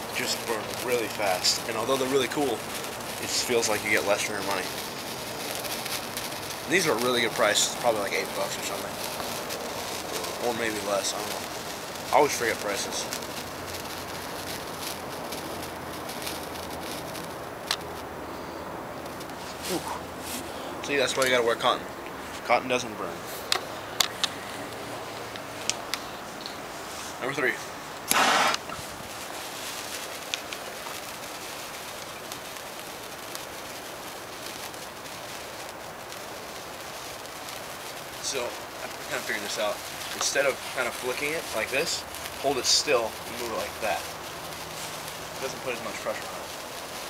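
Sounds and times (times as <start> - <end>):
sparkler fizzing and crackling: 0.0 - 47.0
sharp pop: 28.1 - 28.8.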